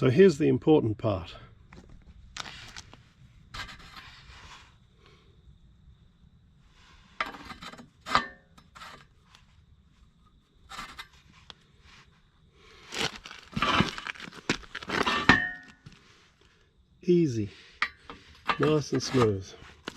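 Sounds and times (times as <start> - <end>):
metal pin scraping and rubbing: 3.5 - 4.7, 7.1 - 9.2, 10.7 - 11.5, 17.8 - 19.9
metallic ring: 15.1 - 15.8.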